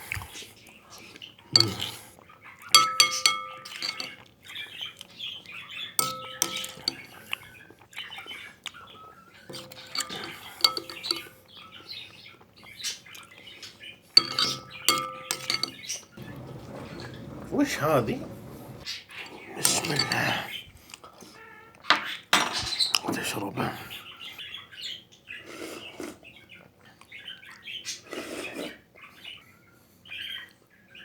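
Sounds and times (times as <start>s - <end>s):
metal utensil clinking glass: 1.6s - 2.0s, 2.7s - 4.2s, 6.0s - 7.3s, 9.5s - 11.6s, 14.2s - 18.8s, 19.6s - 20.4s
soft scraping: 16.2s - 18.8s.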